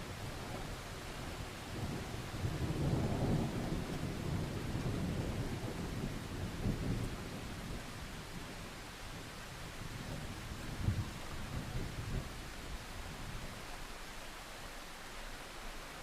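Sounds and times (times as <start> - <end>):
rain hissing: 0.0 - 16.0
thunder rolling: 1.7 - 7.9.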